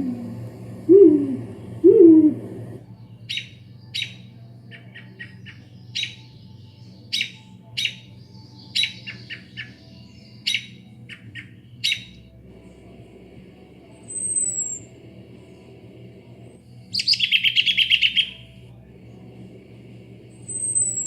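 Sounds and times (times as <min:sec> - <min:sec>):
low gliding bird calls: 0:00.0 - 0:06.5, 0:08.7 - 0:12.4, 0:14.0 - 0:16.0, 0:16.6 - 0:18.6, 0:20.2 - 0:21.0
sharp high chirps: 0:14.1 - 0:15.0.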